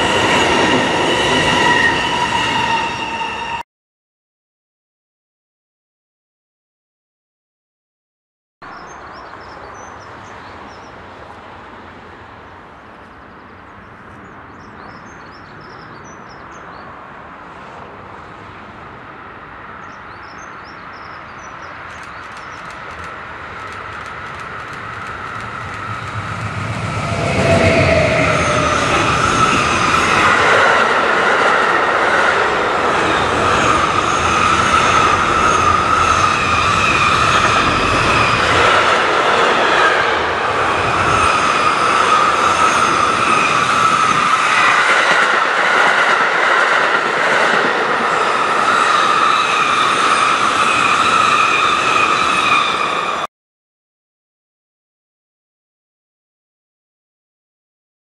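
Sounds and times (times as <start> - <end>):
train wheels rumbling on rails: 0.0 - 3.6, 21.8 - 53.3
small birds chirping: 19.8 - 23.0.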